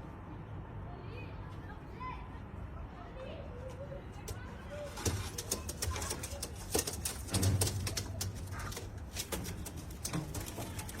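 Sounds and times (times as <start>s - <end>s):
bird clicks and rustles: 4.3s - 11.0s.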